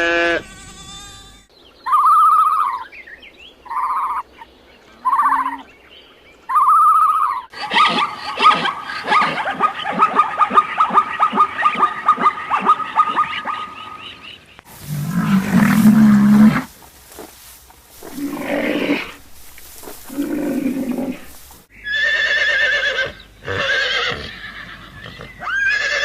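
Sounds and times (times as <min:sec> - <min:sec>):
long low animal call: 0:04.9 - 0:05.7, 0:18.0 - 0:26.0
animal yipping: 0:06.5 - 0:13.8
horse whinnies: 0:20.1 - 0:26.0.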